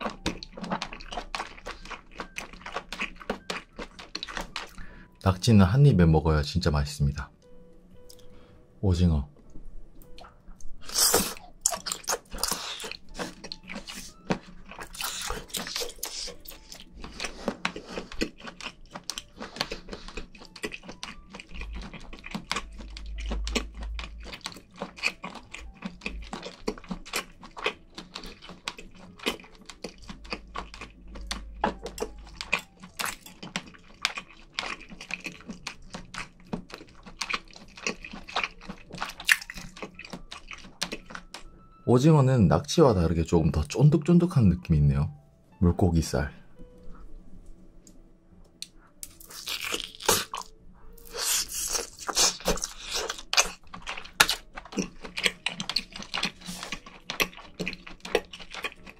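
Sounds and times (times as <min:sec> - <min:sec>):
person chewing wetly: 0:00.0 - 0:05.0, 0:10.1 - 0:41.6, 0:48.6 - 0:58.9.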